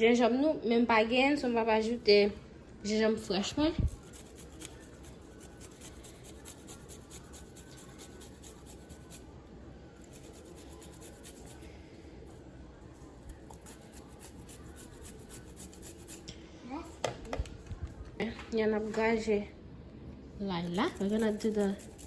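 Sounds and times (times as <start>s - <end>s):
ginger being grated: 3.8s - 9.2s, 10.0s - 11.6s, 13.3s - 16.3s, 20.7s - 22.0s.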